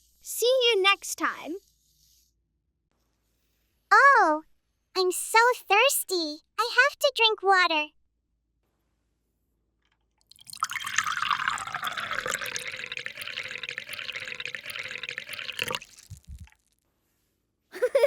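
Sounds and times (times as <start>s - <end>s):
water running into container: 10.2s - 16.6s.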